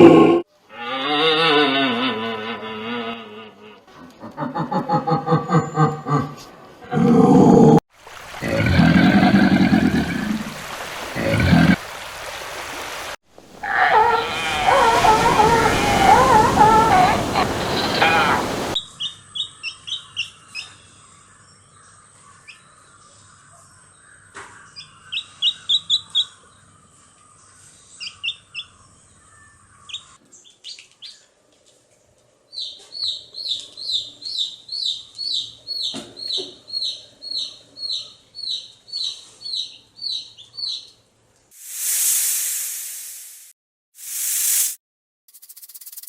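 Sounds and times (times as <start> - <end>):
small bird chirping: 32.5 - 41.0.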